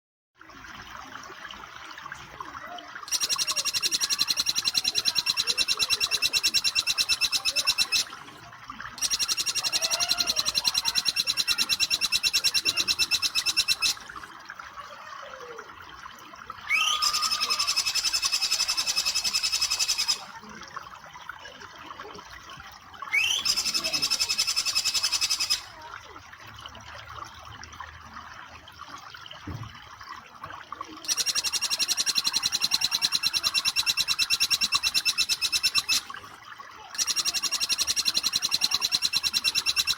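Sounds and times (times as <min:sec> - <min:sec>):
running water: 0:00.4 - 0:39.9
bird trilling: 0:03.1 - 0:08.2, 0:09.0 - 0:14.2, 0:16.6 - 0:20.3, 0:23.1 - 0:25.8, 0:31.0 - 0:36.2, 0:37.0 - 0:39.9.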